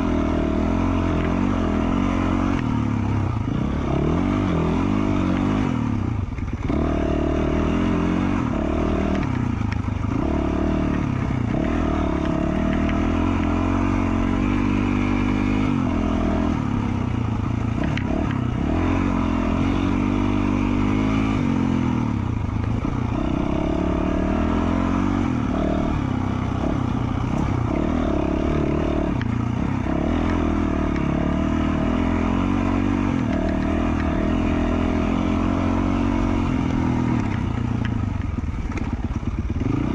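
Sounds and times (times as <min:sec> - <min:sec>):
dirt bike engine revving: 0:00.0 - 0:39.9
clatter from motorbike: 0:36.7 - 0:39.7.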